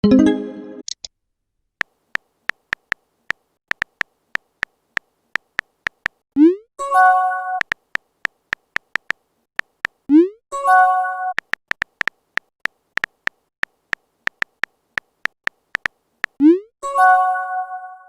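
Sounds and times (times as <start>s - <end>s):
keyboard tap clicks: 2.5s - 6.2s, 7.6s - 10.0s, 11.4s - 16.4s.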